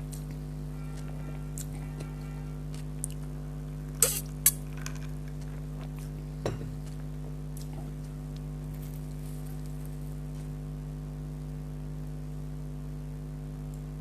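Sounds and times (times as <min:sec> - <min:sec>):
crunchy food being bitten: 0:00.0 - 0:10.6
steady electrical hum: 0:00.0 - 0:14.0.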